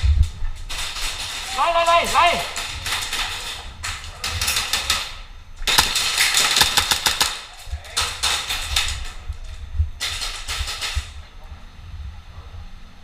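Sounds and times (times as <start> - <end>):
airsoft guns firing in bursts: 5.6 - 8.7.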